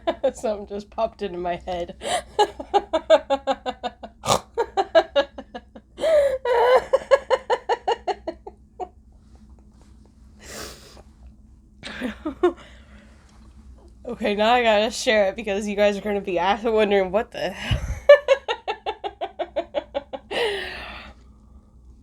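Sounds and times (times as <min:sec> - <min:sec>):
woman laughing hard: 0:01.8 - 0:08.9, 0:11.8 - 0:12.6, 0:17.6 - 0:21.1
loud in-breaths: 0:20.3 - 0:21.8.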